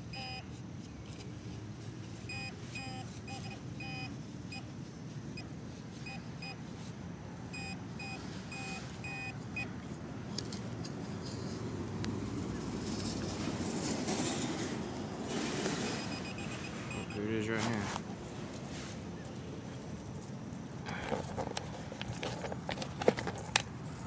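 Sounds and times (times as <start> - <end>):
metal detector beeping: 0.0 - 0.5, 2.3 - 4.7, 5.9 - 6.6, 7.5 - 9.7, 15.7 - 17.9
handling noise: 8.7 - 24.0.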